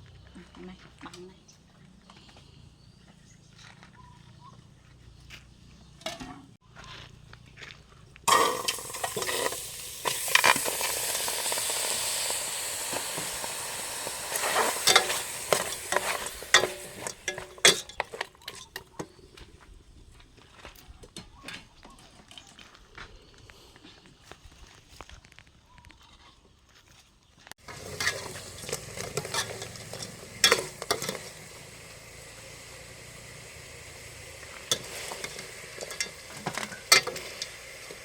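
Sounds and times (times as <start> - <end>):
food sizzling in hot oil: 8.3 - 18.2, 27.6 - 38.0
utensil scraping a pan: 8.3 - 18.7, 27.6 - 38.0.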